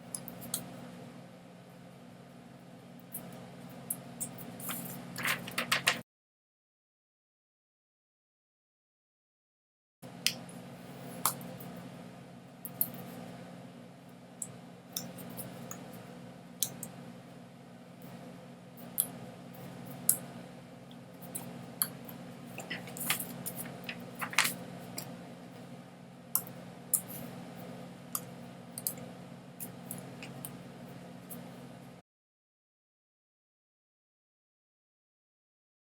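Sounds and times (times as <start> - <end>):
steady low hum: 10.0 - 32.0.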